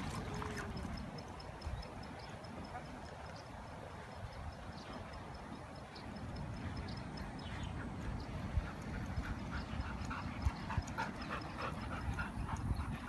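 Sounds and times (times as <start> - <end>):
dog panting: 6.5 - 13.0.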